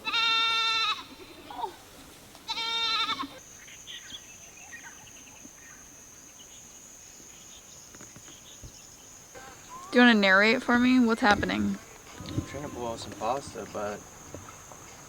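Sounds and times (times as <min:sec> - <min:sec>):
goats bleating: 0:00.0 - 0:01.8, 0:02.4 - 0:03.4, 0:11.7 - 0:14.6.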